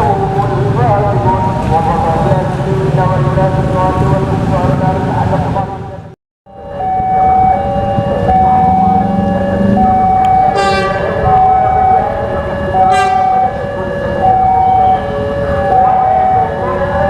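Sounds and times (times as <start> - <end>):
two-tone warning alarm: 6.5 - 17.0.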